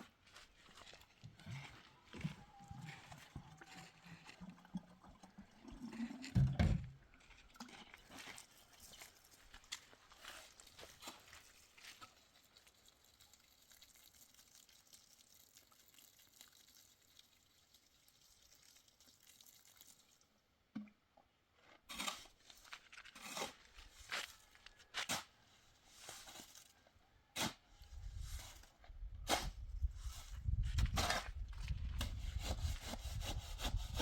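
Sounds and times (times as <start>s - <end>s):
faint crunching and rustling: 0.0s - 5.3s, 7.1s - 13.1s, 21.5s - 29.0s.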